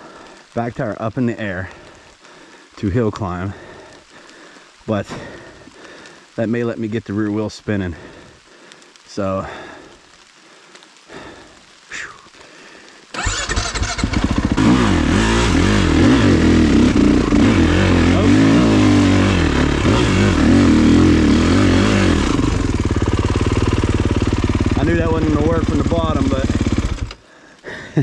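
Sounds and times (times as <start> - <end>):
tire spinning in wet mud: 13.1 - 27.3
dirt bike engine revving: 13.2 - 27.2.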